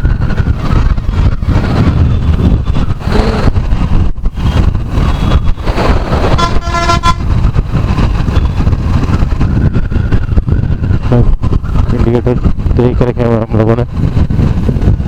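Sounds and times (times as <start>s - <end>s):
motorcycle engine rumble: 0.0s - 15.0s
vehicle horn honking: 6.3s - 7.3s.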